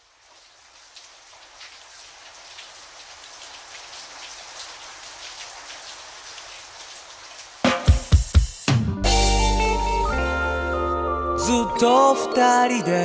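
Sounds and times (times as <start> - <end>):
raindrops ticking: 0.0 - 8.4
rain hissing: 0.0 - 10.2.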